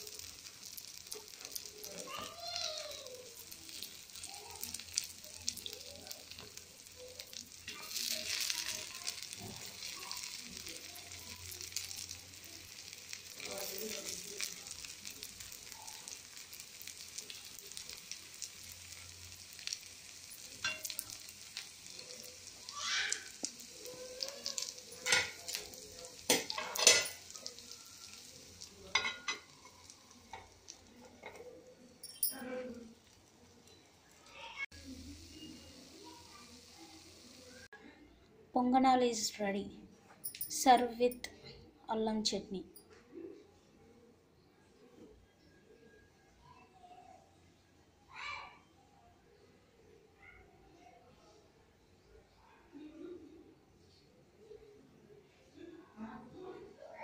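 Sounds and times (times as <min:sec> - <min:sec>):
batter balls frying in oil: 0:00.0 - 0:37.8.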